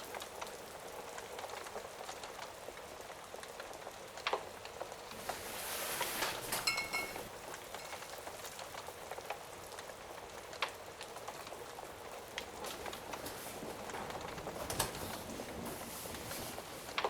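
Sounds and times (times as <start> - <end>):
steady rain: 0.0 - 17.0
wood fire crackles: 0.0 - 17.0
high ringing tone: 6.5 - 8.0.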